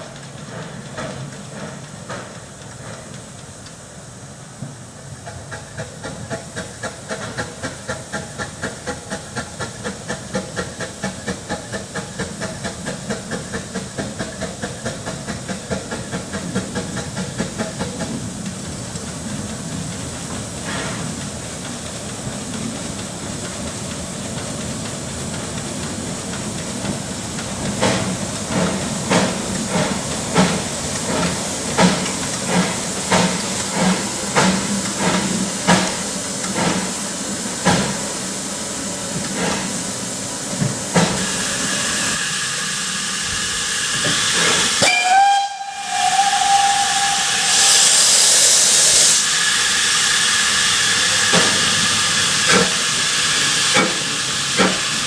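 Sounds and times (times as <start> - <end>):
steam hissing: 0.0 - 55.0
steam locomotive chuffing: 0.0 - 55.0
steam whistle: 42.2 - 51.2.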